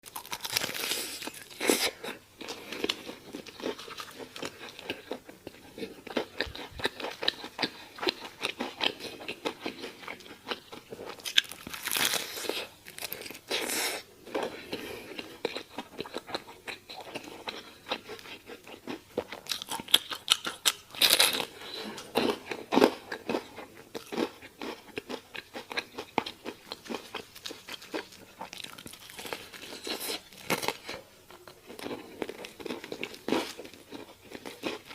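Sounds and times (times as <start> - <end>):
crunchy chewing of fried chicken: 0.0 - 34.9.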